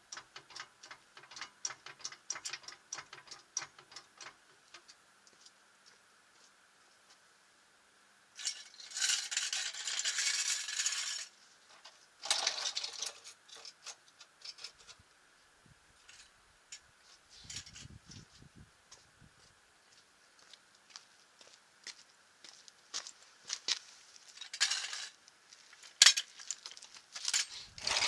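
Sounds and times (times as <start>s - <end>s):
small metal parts clattering: 8.4s - 11.3s, 12.2s - 15.0s, 24.4s - 28.0s.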